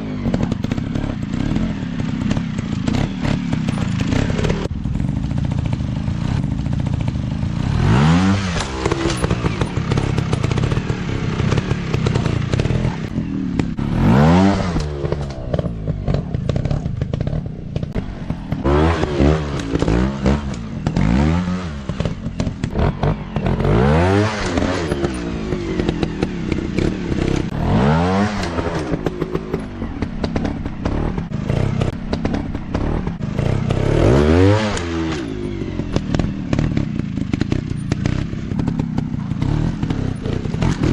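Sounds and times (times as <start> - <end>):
dirt bike engines revving: 0.0 - 40.9.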